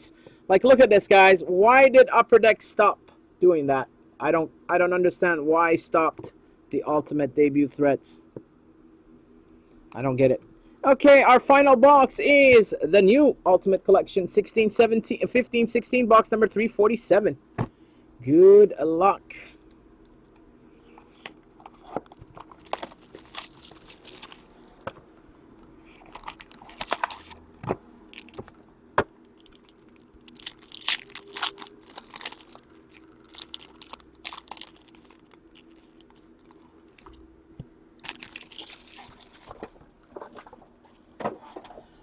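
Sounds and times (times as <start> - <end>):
plastic wrapping crinkling: 21.1 - 24.8, 25.8 - 27.4, 28.1 - 28.6, 29.2 - 37.2, 38.0 - 40.6.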